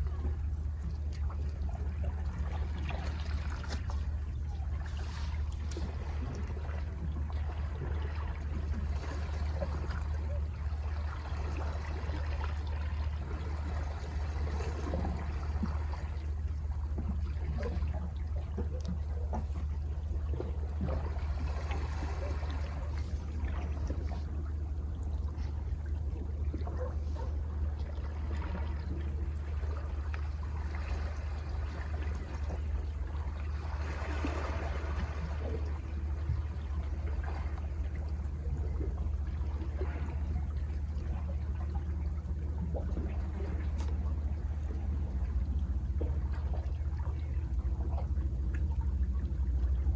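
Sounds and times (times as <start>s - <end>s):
low rumble: 0.0s - 49.9s
sea water washing against rocks: 2.2s - 25.6s, 28.0s - 37.9s
sea waves washing among rocks: 20.7s - 23.9s, 33.2s - 35.9s.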